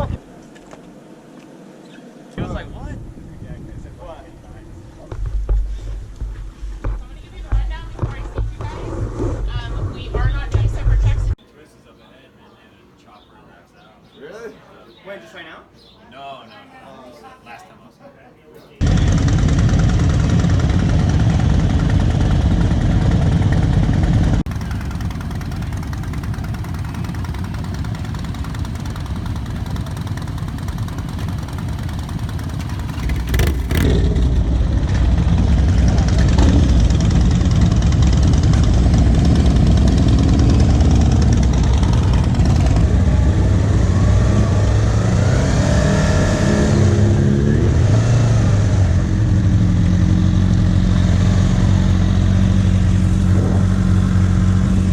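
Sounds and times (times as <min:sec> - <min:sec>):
motorcycle engine running: 0:18.8 - 0:54.9.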